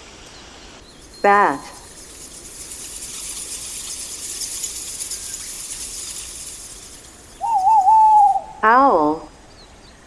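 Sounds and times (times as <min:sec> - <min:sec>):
steady hiss: 0:01.8 - 0:10.0
bat calls chittering: 0:06.9 - 0:09.4.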